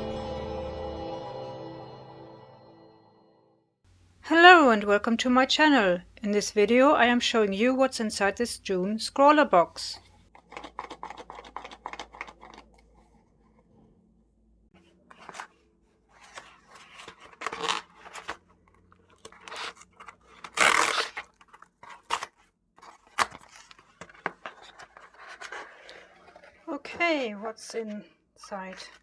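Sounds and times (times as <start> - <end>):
cardboard tearing and rustling: 16.2 - 18.5, 19.1 - 26.6.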